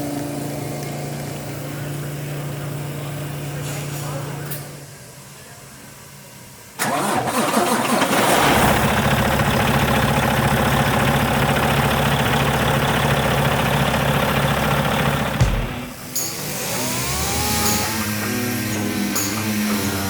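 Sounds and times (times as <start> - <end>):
diesel engine cranking and idling: 6.8 - 20.0.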